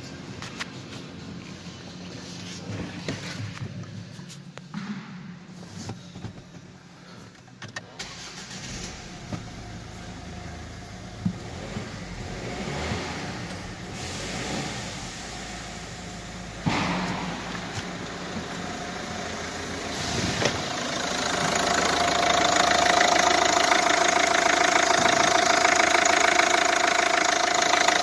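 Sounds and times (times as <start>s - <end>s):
car engine starting and running: 7.9s - 28.0s.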